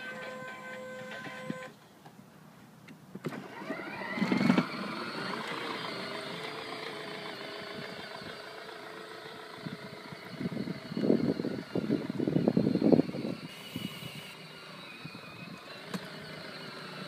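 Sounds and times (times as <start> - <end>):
toy car electric motor whining: 0.0 - 1.7, 3.3 - 17.0
toy music: 0.0 - 1.7.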